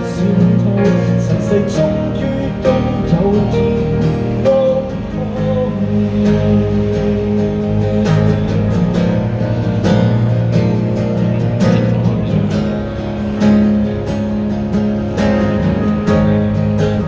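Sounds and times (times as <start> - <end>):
strummed guitar chords: 0.0 - 17.0.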